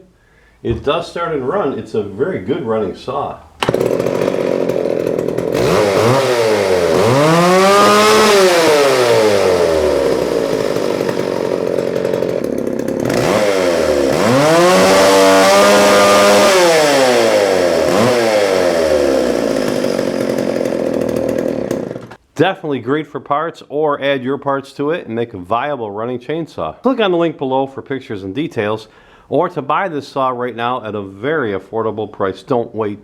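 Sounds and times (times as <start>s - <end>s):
chainsaw revving and idling: 3.6s - 22.2s.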